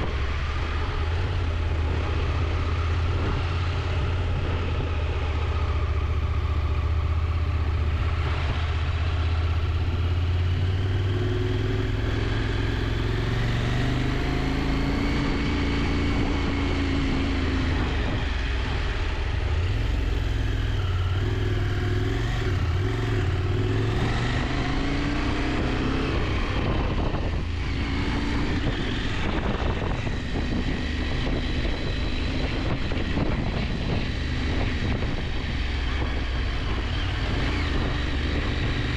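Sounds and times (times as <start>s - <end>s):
motorcycle engine running: 0.0s - 38.9s
road noise: 0.0s - 38.9s
wind noise: 0.0s - 38.9s.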